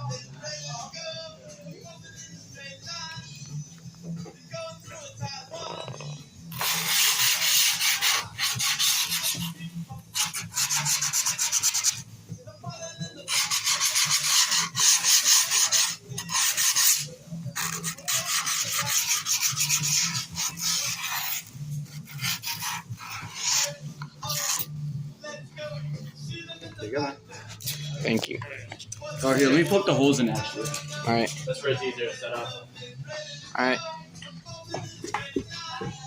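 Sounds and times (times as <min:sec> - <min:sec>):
grip tape rasping on skateboard: 0:06.5 - 0:09.6, 0:10.2 - 0:12.0, 0:13.3 - 0:24.7.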